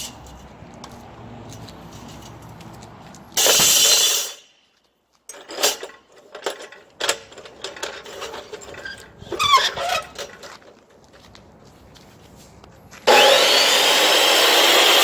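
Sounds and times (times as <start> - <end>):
metal parts clicking and clanking: 3.4 - 4.5, 5.2 - 11.2.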